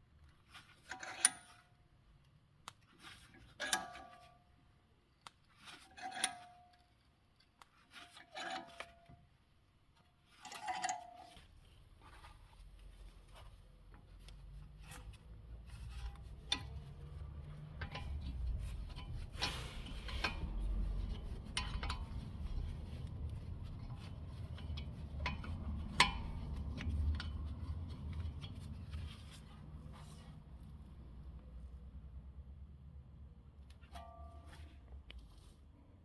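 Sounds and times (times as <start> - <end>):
metal scraping: 14.8 - 30.3.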